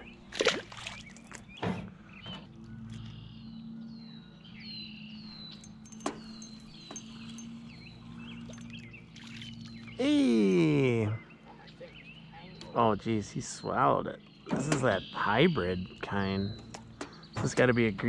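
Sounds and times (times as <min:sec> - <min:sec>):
songbird falling chirp: 0:04.0 - 0:12.8, 0:13.6 - 0:18.0.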